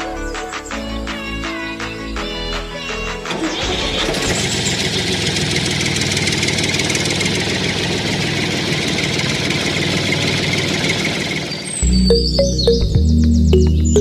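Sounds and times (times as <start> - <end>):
engine running: 3.6 - 12.1.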